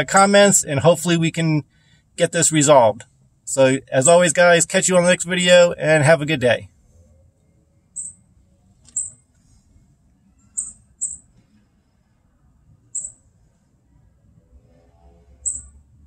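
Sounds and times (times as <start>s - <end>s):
small bird chirping: 7.9s - 8.2s, 8.9s - 9.2s, 10.3s - 11.4s, 12.9s - 13.3s, 15.4s - 15.8s.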